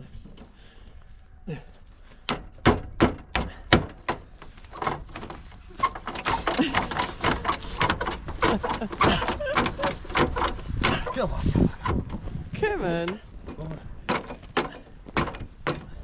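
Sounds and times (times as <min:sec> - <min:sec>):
sharp knocks: 0:02.3 - 0:12.2, 0:13.5 - 0:16.0
clattering noise: 0:02.3 - 0:16.0.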